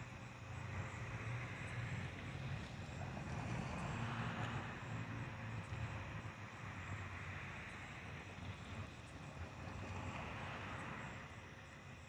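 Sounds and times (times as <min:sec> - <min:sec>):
approaching train rumble: 0:00.0 - 0:12.0.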